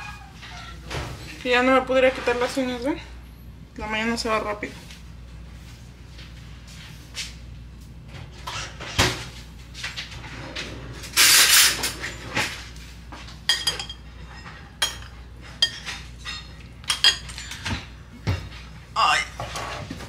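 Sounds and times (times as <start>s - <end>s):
dishes and cutlery clinking: 13.5s - 18.6s.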